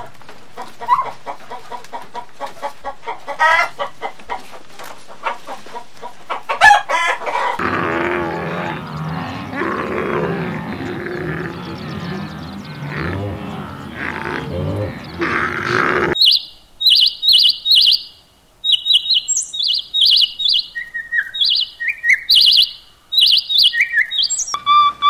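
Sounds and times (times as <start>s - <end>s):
hen clucking: 0.5s - 16.2s
steady background sound: 7.6s - 16.2s.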